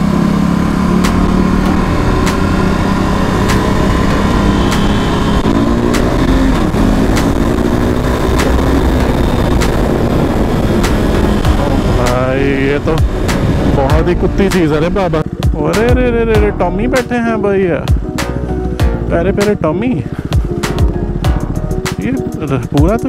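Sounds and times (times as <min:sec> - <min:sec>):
motorcycle engine accelerating: 0:00.0 - 0:23.0
wind noise: 0:01.2 - 0:15.6.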